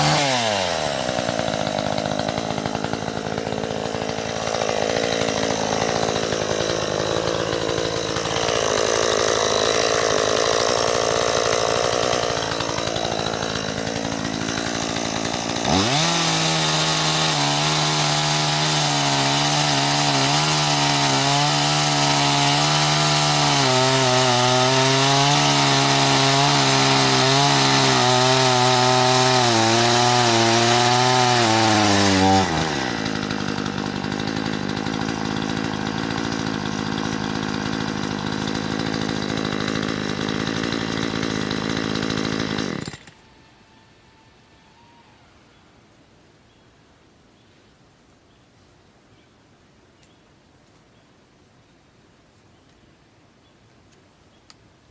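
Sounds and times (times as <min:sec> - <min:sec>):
chainsaw cutting a branch: 0:00.0 - 0:43.3.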